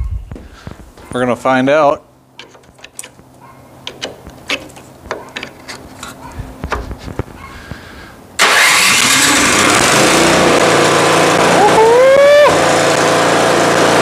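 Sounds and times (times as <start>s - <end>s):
handling clicks and knocks: 2.4s - 7.4s
electric starter cranking: 8.4s - 14.0s
snowblower engine running: 8.4s - 14.0s.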